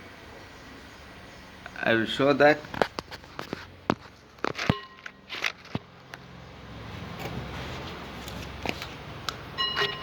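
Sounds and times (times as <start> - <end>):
metal engine parts clicking: 4.3 - 6.2.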